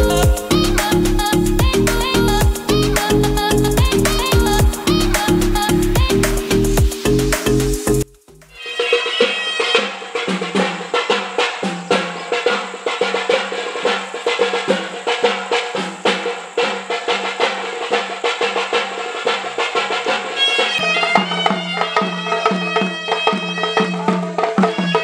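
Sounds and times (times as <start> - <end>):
shrill pipe melody: 0.0 - 14.1, 20.4 - 25.0
quick drum strokes: 0.0 - 25.0.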